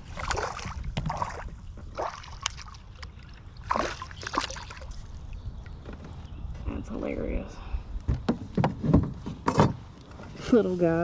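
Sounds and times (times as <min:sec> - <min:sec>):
water splashing and dripping: 0:00.0 - 0:05.4.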